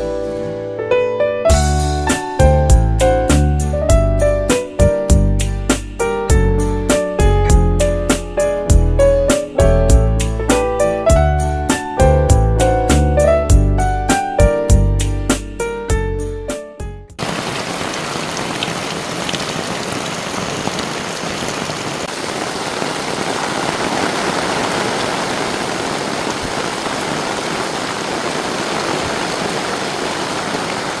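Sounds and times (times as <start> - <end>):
heavy rain falling: 17.2 - 31.0.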